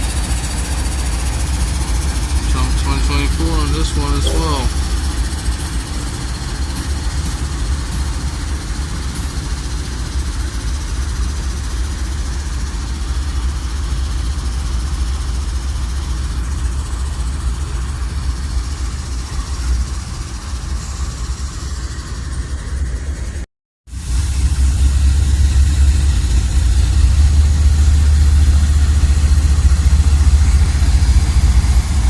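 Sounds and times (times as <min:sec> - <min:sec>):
train cars rolling: 0:00.0 - 0:12.2, 0:24.0 - 0:32.0
diesel locomotives rumbling: 0:00.0 - 0:32.0.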